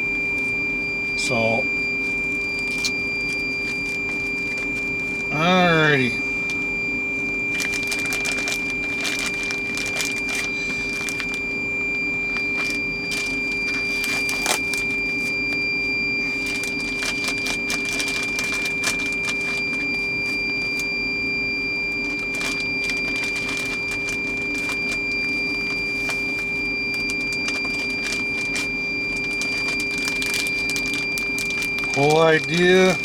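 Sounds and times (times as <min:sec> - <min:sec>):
electrical hum: 0:00.0 - 0:33.0
plastic packaging crinkling: 0:07.5 - 0:11.5, 0:12.2 - 0:15.6, 0:16.2 - 0:21.0, 0:21.9 - 0:33.0.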